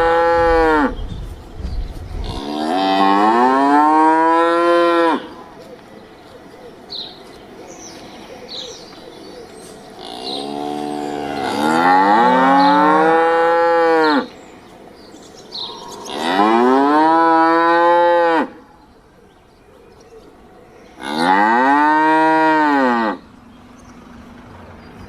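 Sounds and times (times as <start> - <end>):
cow mooing: 0.0 - 1.0, 2.2 - 5.4, 10.0 - 14.3, 15.6 - 18.6, 21.0 - 23.3.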